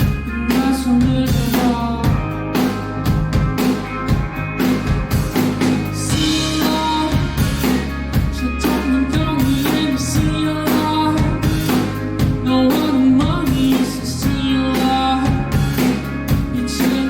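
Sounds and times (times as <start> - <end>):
bass guitar: 0.0 - 17.0
drum kit beat: 0.0 - 17.0
electric guitar: 0.0 - 17.0.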